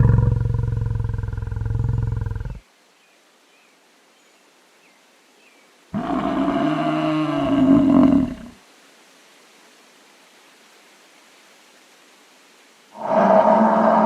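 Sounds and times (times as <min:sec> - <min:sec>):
buffalo calling: 0:13.0 - 0:14.0.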